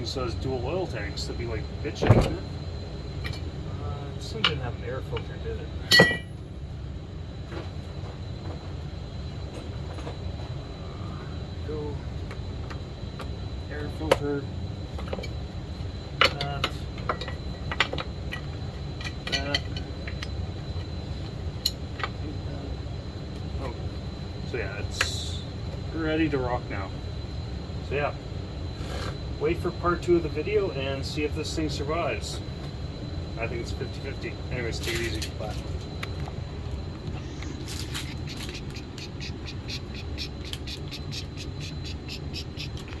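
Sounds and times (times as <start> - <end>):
small animal chirping rapidly: 37.2 - 43.0.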